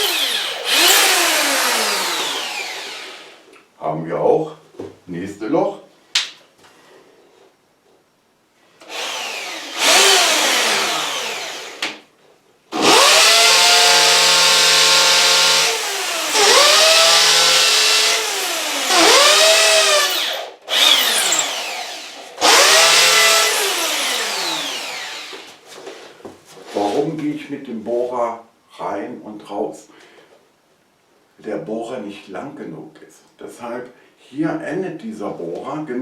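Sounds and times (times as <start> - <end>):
hammer drill boring into wall: 0.0 - 3.4, 8.8 - 12.0, 12.8 - 25.6.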